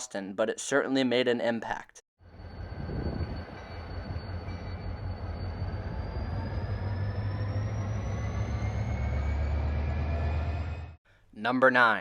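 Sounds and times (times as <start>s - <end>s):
diesel rail engine rumbling: 2.2s - 11.0s
high engine whine: 2.2s - 11.0s.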